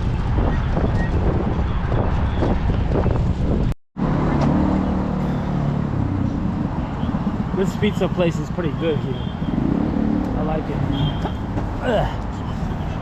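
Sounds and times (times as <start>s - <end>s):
wind rushing over microphone: 0.0s - 4.2s
vehicle engine humming: 1.3s - 13.0s.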